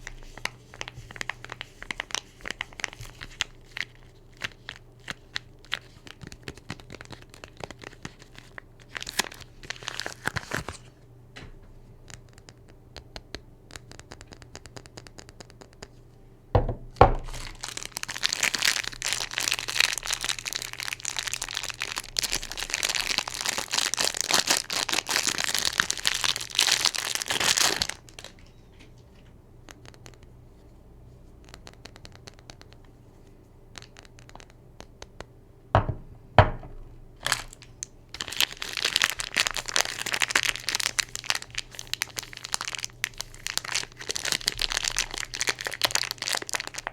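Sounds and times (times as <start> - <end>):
soap wrapping crinkling: 0.0 - 10.9, 17.0 - 30.3, 33.8 - 35.0, 36.5 - 46.9
packaging tearing open: 0.1 - 10.9, 17.2 - 28.4, 37.2 - 46.9
soft knock: 16.6 - 17.2, 35.8 - 36.9.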